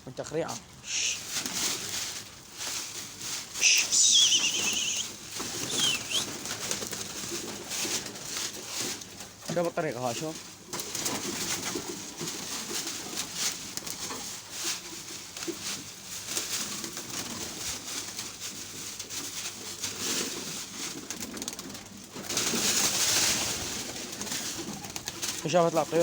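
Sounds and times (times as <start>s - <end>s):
rustling burst: 0.8s - 6.4s
pigeons cooing: 3.6s - 6.8s, 23.7s - 25.5s.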